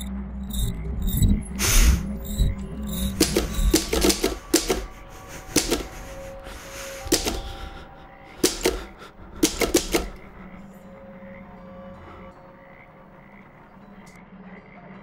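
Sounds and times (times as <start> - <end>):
typewriter keys striking: 3.0 - 7.8, 8.4 - 10.4.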